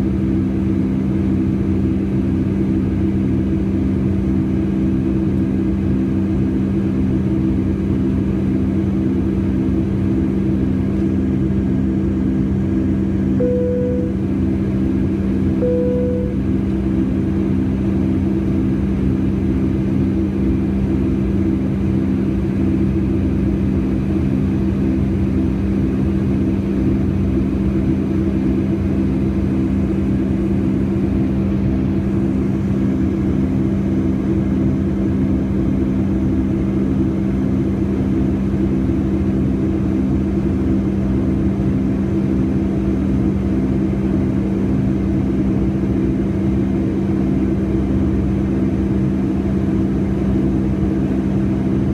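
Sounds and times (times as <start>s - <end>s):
jet engines droning in cabin: 0.0s - 51.9s.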